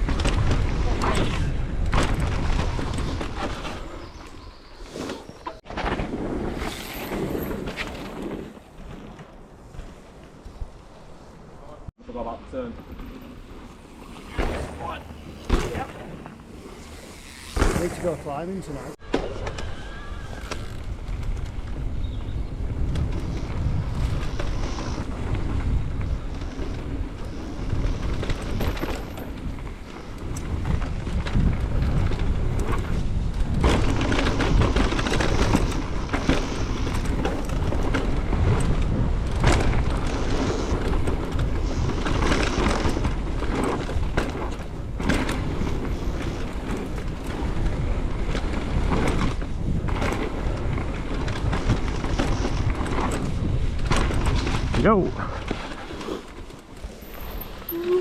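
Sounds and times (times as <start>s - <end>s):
bike clattering over bumps: 0.0s - 4.0s, 12.8s - 18.9s, 22.7s - 57.7s
tyres rolling over dirt: 0.0s - 10.4s, 12.6s - 21.9s, 22.8s - 58.0s
wind buffeting microphone: 12.8s - 58.0s.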